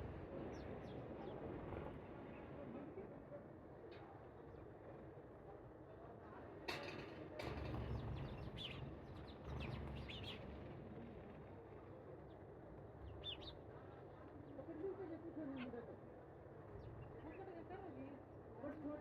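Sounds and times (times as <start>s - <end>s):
small birds chirping: 7.9s - 10.5s, 13.1s - 13.6s.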